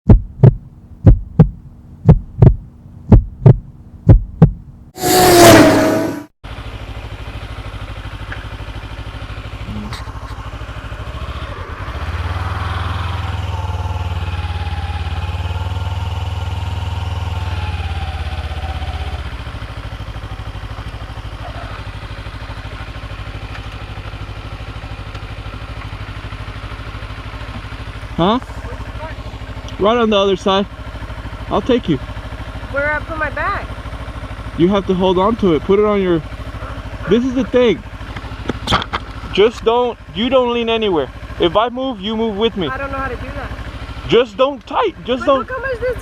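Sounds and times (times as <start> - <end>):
heartbeat-like thumps: 0.0 - 4.8
motorcycle engine running: 0.0 - 46.0
loud burst: 5.0 - 6.3.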